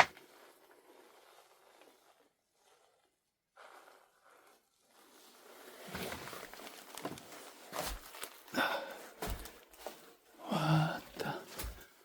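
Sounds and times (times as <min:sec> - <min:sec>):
footsteps: 0:09.2 - 0:10.0.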